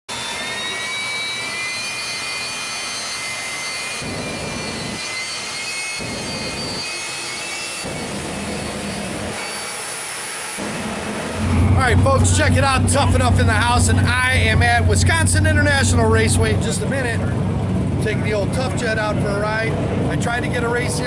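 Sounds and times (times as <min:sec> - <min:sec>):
jet engine whistling whine: 0:00.1 - 0:21.0.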